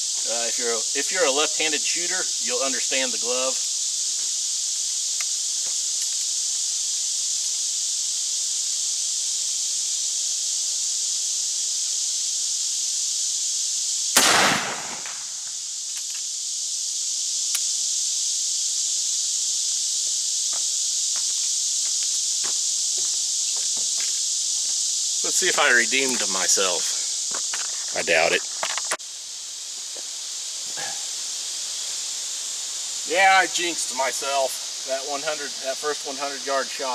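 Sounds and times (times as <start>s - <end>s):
high insect buzz: 0.0s - 36.9s
gunshot report: 14.2s - 15.4s.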